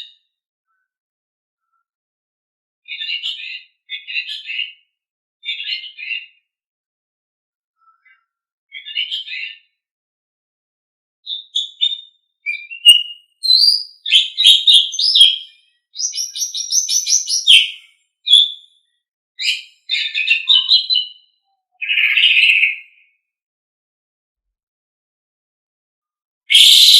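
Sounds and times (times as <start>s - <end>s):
starling singing: 11.3s - 18.6s, 19.4s - 23.0s, 26.5s - 26.9s.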